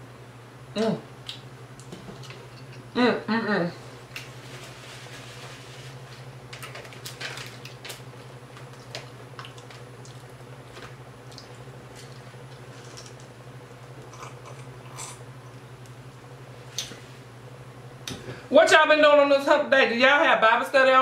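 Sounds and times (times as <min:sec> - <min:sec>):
steady low hum: 0:00.0 - 0:21.0
crispy fish crunching: 0:06.5 - 0:15.2.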